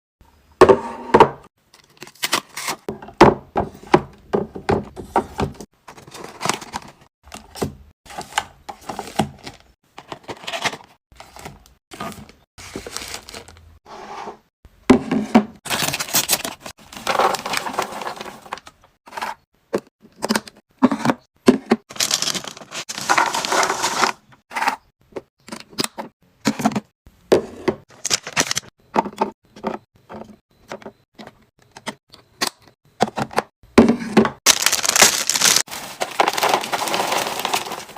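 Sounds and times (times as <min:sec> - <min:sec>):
plastic containers clicking and knocking: 0:02.9 - 0:10.2, 0:25.1 - 0:37.9
packaging crinkling and rustling: 0:08.8 - 0:13.6, 0:15.7 - 0:18.9, 0:21.9 - 0:24.2, 0:34.5 - 0:37.9.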